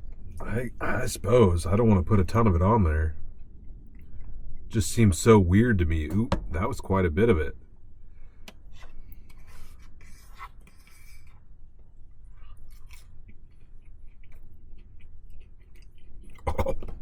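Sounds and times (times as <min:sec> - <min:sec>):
man chewing crisp food: 0:09.0 - 0:17.0.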